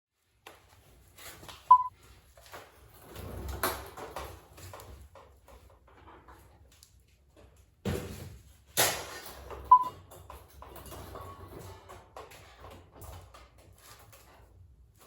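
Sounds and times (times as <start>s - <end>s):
short high beep: 1.7s - 1.9s.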